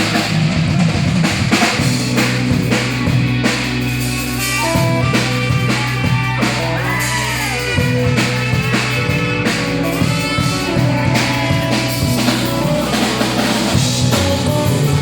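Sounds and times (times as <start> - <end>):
bending guitar notes: 0.0 - 15.0
blues rock band playing: 0.0 - 15.0
drum kit beat: 0.0 - 15.0.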